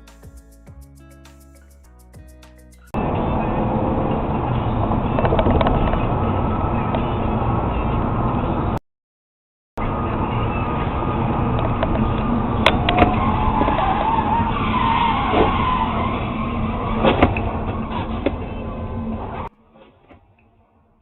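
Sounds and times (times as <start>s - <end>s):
road noise: 3.0s - 8.8s, 9.8s - 19.5s
car tyres squealing: 10.3s - 20.0s.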